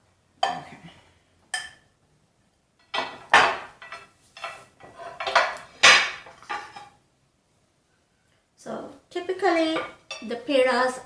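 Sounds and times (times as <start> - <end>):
utensil scraping against a pot: 3.9 - 5.6.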